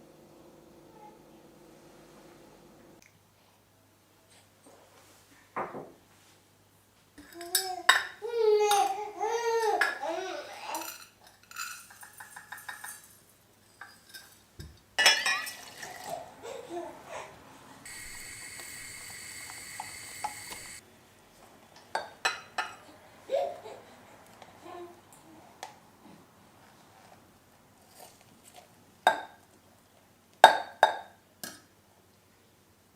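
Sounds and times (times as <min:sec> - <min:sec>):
dishes and cutlery clinking: 0:10.8 - 0:16.2
tap running: 0:17.9 - 0:20.8.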